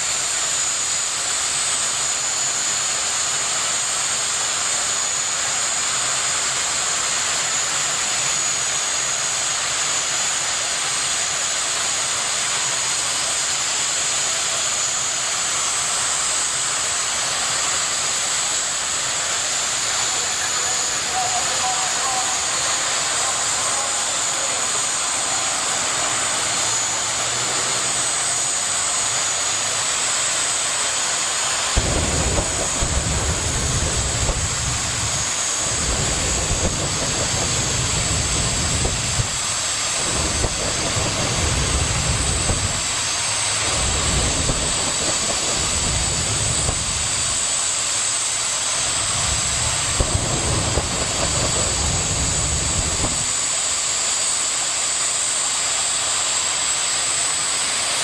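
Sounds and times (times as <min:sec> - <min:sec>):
jet engine whining: 0:00.0 - 0:58.0
deep rumble: 0:31.8 - 0:47.7, 0:48.8 - 0:53.5.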